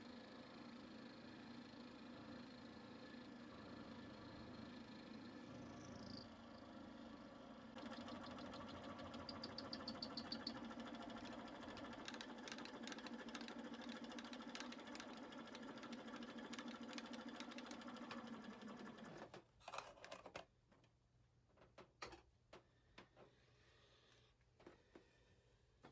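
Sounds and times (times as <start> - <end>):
machine tool humming and ticking: 7.8 - 19.0.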